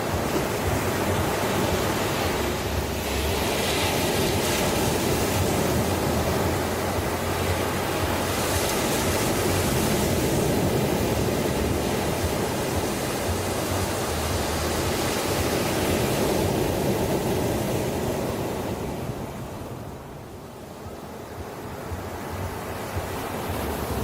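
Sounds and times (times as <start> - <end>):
sea waves washing ashore: 0.0 - 24.0.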